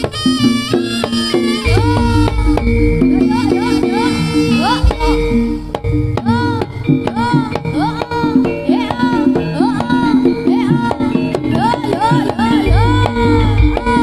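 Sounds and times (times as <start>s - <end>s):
struck-note percussion: 0.0s - 14.0s
high swooping melody: 1.6s - 7.3s
heavy low drum beats: 1.6s - 8.1s, 12.4s - 14.0s.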